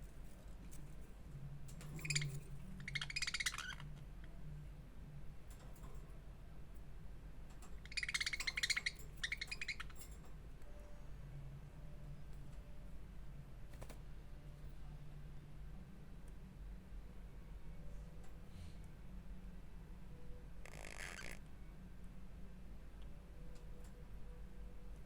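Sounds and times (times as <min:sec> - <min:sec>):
steady low hum: 0:00.0 - 0:25.0
budgerigar chattering: 0:20.6 - 0:21.4.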